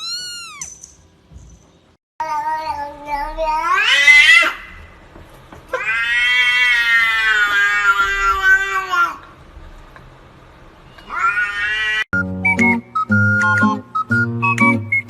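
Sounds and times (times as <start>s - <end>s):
cat meowing: 0.0s - 0.8s, 5.7s - 9.2s, 11.0s - 12.1s.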